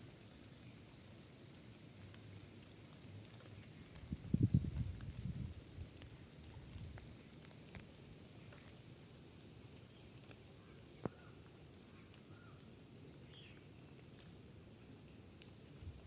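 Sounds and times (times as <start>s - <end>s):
low wind rumble: 4.0s - 7.1s.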